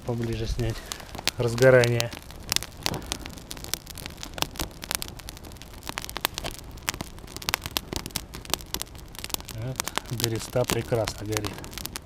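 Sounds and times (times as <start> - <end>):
fire crackling and popping: 0.0 - 12.0
fire hissing: 0.0 - 12.0.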